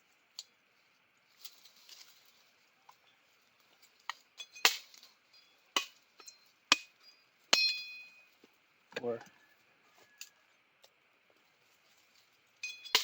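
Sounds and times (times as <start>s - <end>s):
rustling and scraping: 0.7s - 7.2s, 11.2s - 13.0s.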